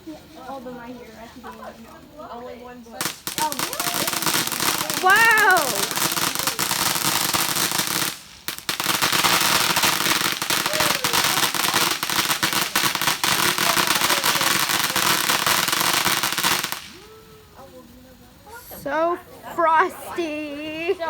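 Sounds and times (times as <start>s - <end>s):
firework crackling sharp pops: 3.0s - 18.6s.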